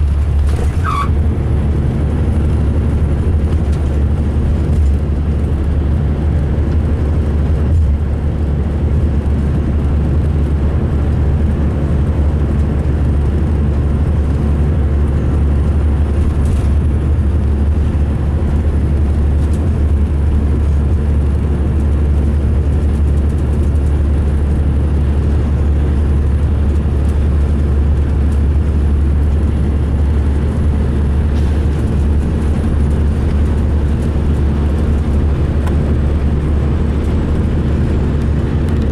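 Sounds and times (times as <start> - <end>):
diesel coach engine and road rumble: 0.0 - 38.9.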